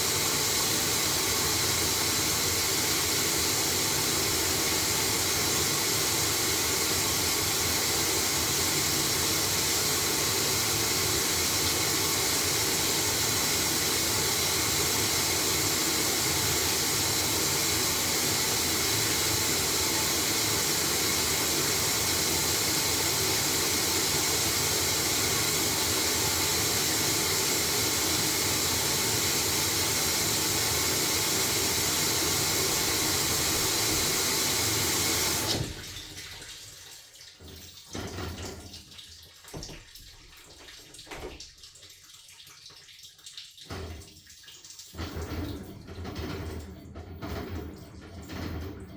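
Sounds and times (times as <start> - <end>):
washing machine hiss and whoosh: 0.0 - 35.8.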